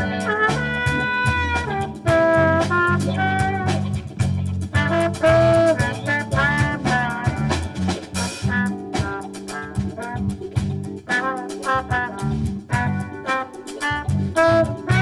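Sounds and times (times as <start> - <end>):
big band playing swing jazz: 0.0 - 15.0.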